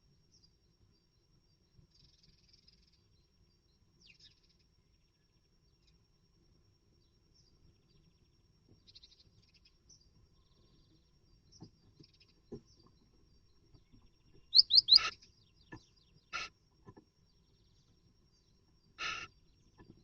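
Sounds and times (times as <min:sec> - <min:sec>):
bird chirping: 0:07.4 - 0:16.5
bird sweeping call notes: 0:14.5 - 0:15.2
harsh bird call: 0:14.5 - 0:15.2, 0:19.0 - 0:19.3.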